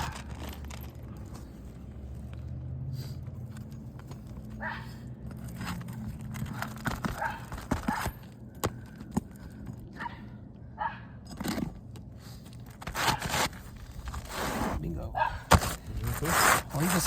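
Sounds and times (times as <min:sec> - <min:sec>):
tools scraping roof shingles: 0:05.2 - 0:09.6, 0:11.3 - 0:14.8, 0:15.4 - 0:17.0.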